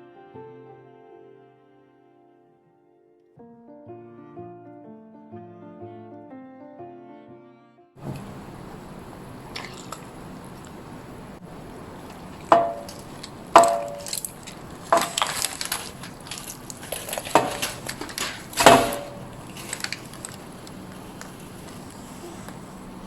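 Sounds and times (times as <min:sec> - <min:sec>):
knife chopping on wooden board: 0:12.5 - 0:14.3, 0:14.9 - 0:19.8.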